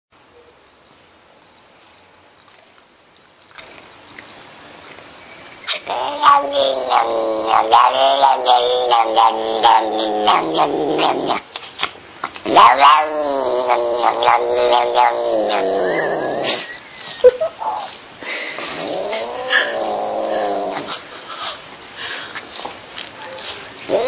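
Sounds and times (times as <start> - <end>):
cat yowling: 5.6 - 11.4, 12.4 - 16.6, 18.8 - 21.0.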